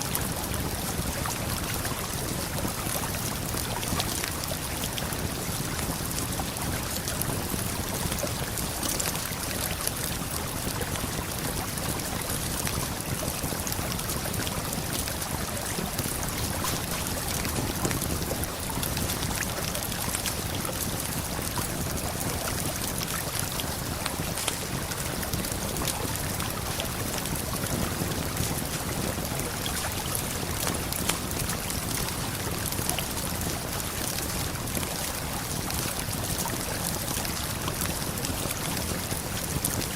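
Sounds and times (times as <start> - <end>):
campfire crackling and popping: 0.2 - 39.9.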